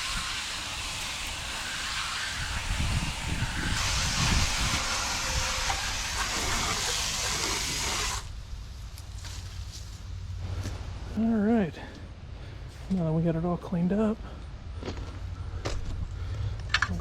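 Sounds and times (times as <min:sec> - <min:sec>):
water spray hissing from hose: 0:00.0 - 0:08.3.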